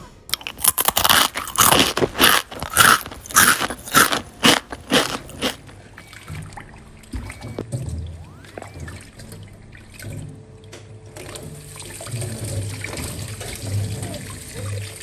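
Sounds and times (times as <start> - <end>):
person crunching pickled cucumber: 0.3 - 5.8.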